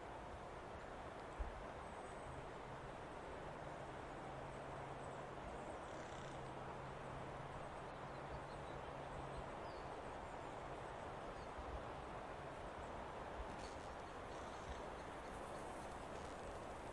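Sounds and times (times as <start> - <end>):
hiss of air and leaves: 12.1 - 16.9.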